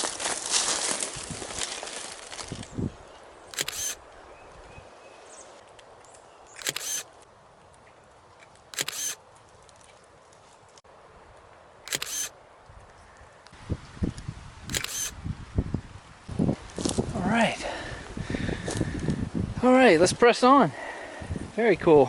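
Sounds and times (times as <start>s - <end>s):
rustling: 0.0s - 2.8s
camera shutter clicking: 3.5s - 4.0s, 6.6s - 7.2s, 8.7s - 9.2s, 11.9s - 12.3s, 14.7s - 15.2s.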